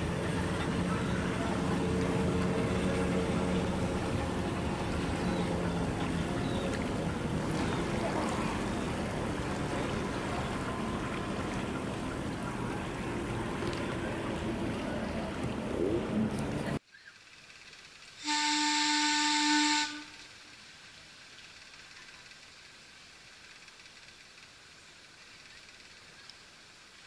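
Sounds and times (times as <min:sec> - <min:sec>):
boat engine humming: 0:00.0 - 0:16.8
water rushing: 0:00.0 - 0:16.8
wind: 0:00.0 - 0:27.0.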